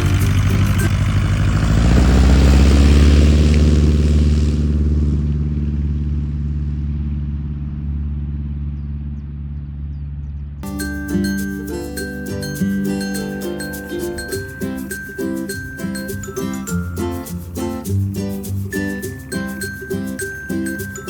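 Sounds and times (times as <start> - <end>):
propeller aircraft passing by: 0.0 - 10.5.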